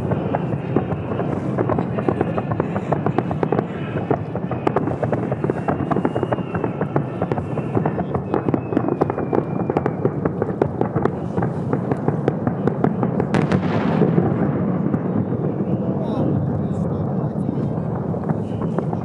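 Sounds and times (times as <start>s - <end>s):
hissing firework burst: 0.0s - 15.6s
fireworks crackling: 0.0s - 19.0s
thin whistle: 5.5s - 10.2s.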